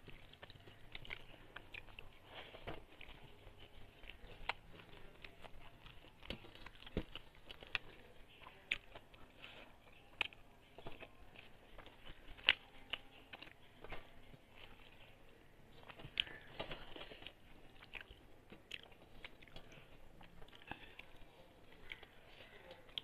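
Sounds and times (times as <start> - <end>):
person chewing and biting: 0.0 - 9.2.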